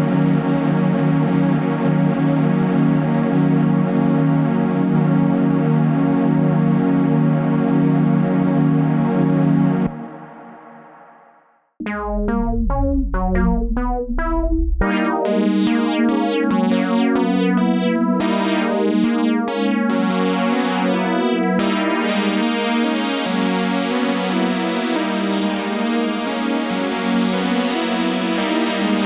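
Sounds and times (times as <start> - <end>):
steady synth bass: 0.0 - 10.8, 11.8 - 22.3
synth ringing tail: 11.8 - 15.4
bright plucked synth run: 11.8 - 17.8
plucky synth notes with sweeps: 11.8 - 23.4.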